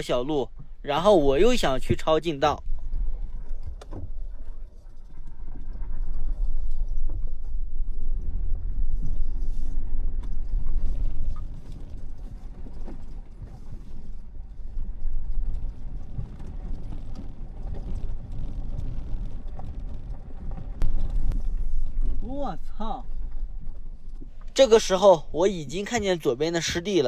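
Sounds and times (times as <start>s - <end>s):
suspension knocks and creaks: 0.0s - 27.0s
vehicle rumbling on dirt track: 5.6s - 27.0s.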